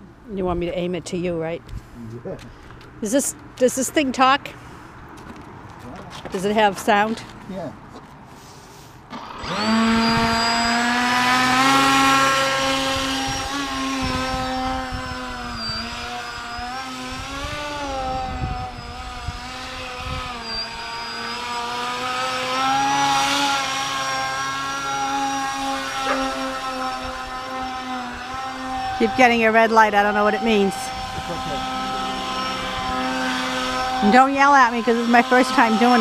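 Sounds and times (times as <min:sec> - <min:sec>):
model airplane motor humming: 0:09.1 - 0:36.0.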